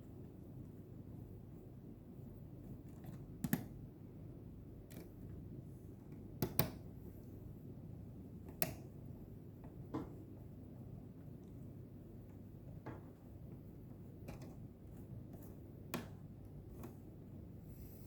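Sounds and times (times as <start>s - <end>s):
low steady hum: 0.0s - 18.0s
clicks and taps of small parts: 2.9s - 3.7s, 6.1s - 6.8s.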